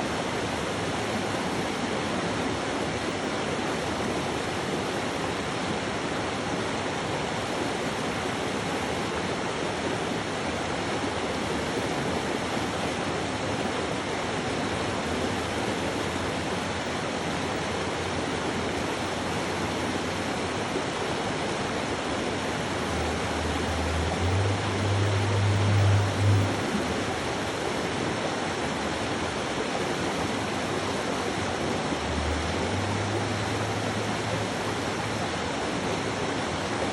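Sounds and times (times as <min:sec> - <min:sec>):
running water: 0:00.0 - 0:36.9
low hum: 0:22.6 - 0:27.7.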